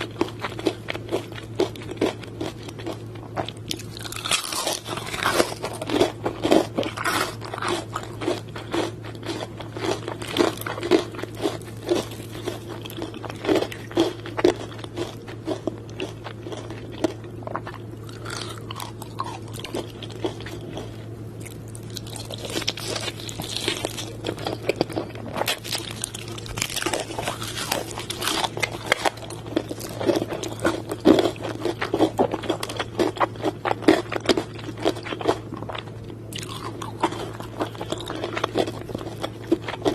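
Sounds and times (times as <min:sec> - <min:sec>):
crunchy bites and chewing: 0:00.0 - 0:39.9
steady low hum: 0:00.0 - 0:39.9.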